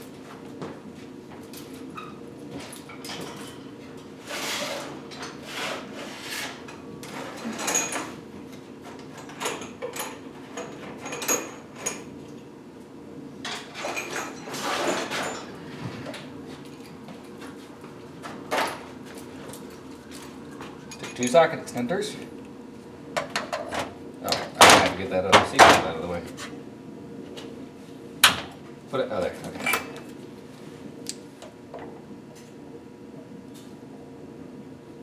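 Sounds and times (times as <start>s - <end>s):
steady low hum: 15.3s - 35.0s.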